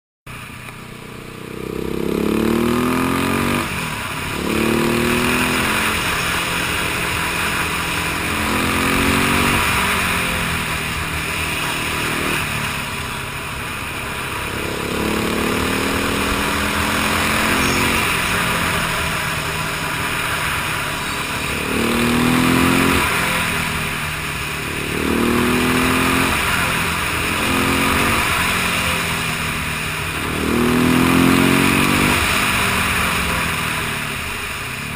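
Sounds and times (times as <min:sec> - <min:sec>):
motorcycle engine accelerating: 0:00.3 - 0:34.9.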